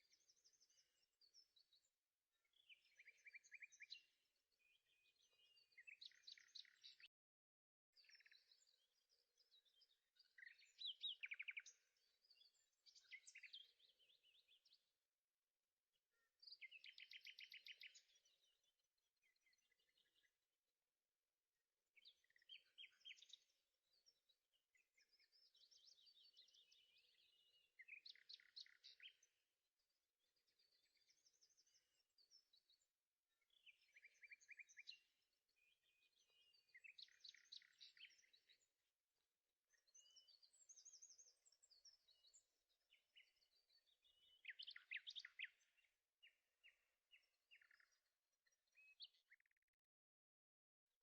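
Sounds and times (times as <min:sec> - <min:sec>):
faint birdsong chirps and trills: 0:00.0 - 0:51.0.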